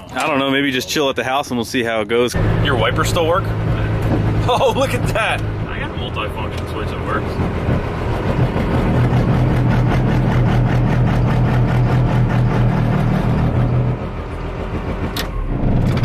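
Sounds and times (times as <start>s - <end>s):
diesel truck engine running: 2.3s - 16.0s.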